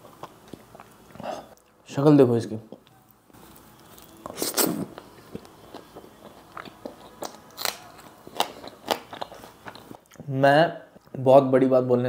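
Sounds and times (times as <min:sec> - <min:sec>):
person biting and chewing: 0:04.0 - 0:10.2.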